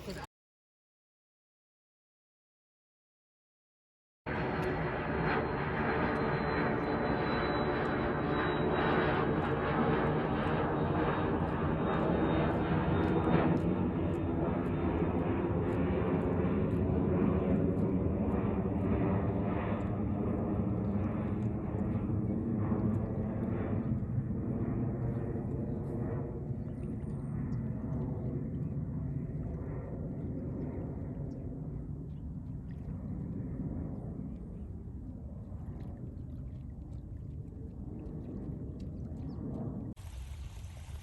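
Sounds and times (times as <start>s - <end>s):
high engine whine: 4.3s - 26.5s
airplane engine drone: 4.3s - 41.0s.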